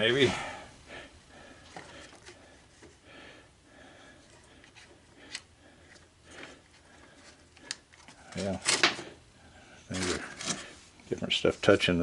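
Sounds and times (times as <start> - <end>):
handling rustles: 9.9 - 11.8.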